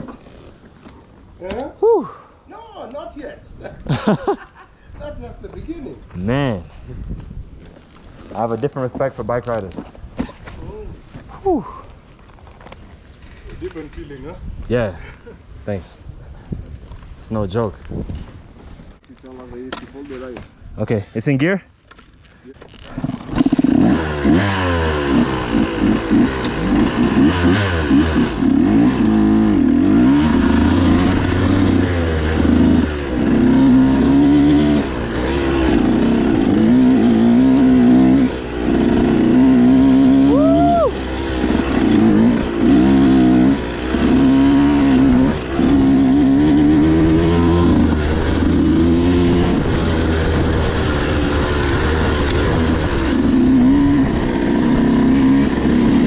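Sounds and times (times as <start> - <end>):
dirt bike engine revving: 22.9 - 56.0.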